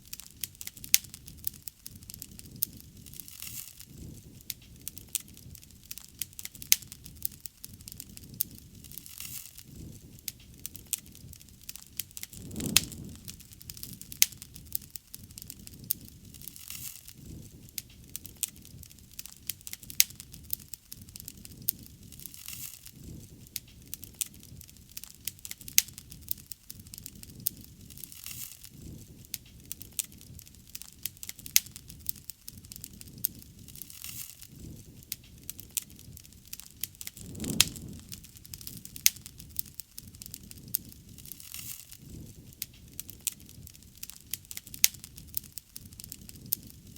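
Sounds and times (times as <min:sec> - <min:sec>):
bonfire crackling and popping: 0:00.0 - 0:46.9
low rushing fire sound: 0:12.2 - 0:14.8, 0:36.8 - 0:39.6.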